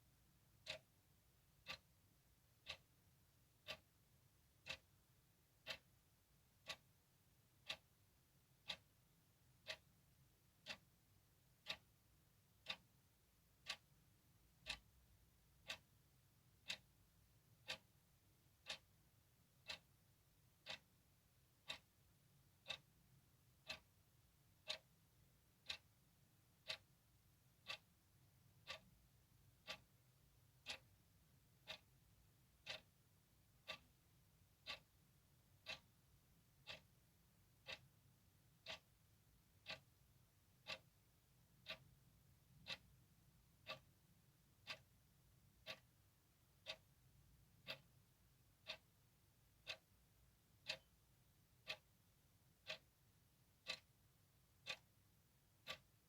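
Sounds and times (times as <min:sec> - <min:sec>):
clock ticking: 0:00.4 - 0:56.0.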